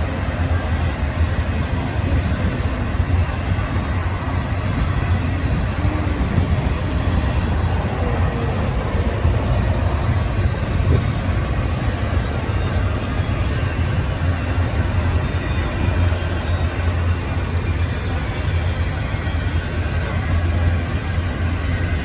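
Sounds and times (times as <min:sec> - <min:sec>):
freight train wheels rumbling on rails: 0:00.0 - 0:22.0.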